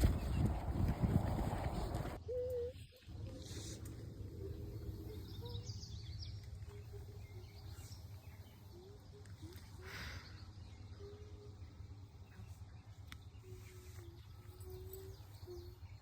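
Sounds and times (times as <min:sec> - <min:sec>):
low outdoor rumble: 0:00.0 - 0:02.2.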